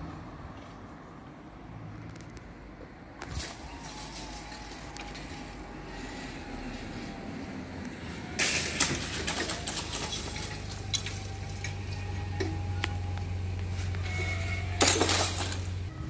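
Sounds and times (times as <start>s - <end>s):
thin squeals: 3.2s - 7.4s, 8.4s - 16.0s
train low hum: 3.2s - 9.1s, 10.0s - 16.0s
loud rail noise: 3.2s - 16.0s.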